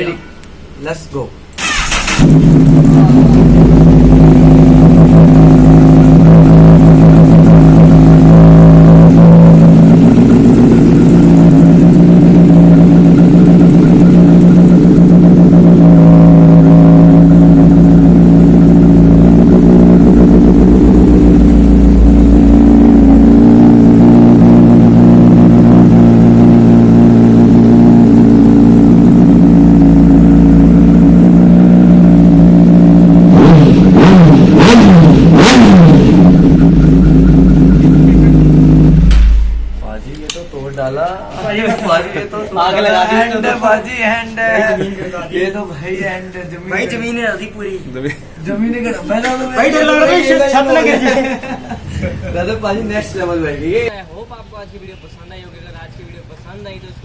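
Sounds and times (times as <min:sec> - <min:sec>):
motorcycle engine running loudly: 0:01.7 - 0:40.0.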